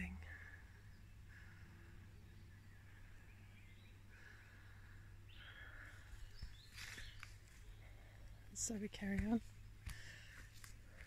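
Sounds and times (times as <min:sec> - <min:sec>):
faint bird chirps: 0:00.0 - 0:08.2
low steady rumble: 0:00.0 - 0:11.0.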